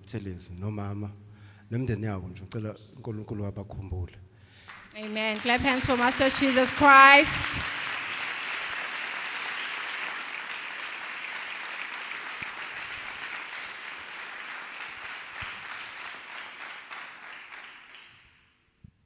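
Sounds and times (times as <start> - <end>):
congregation applauding: 4.6 - 18.4.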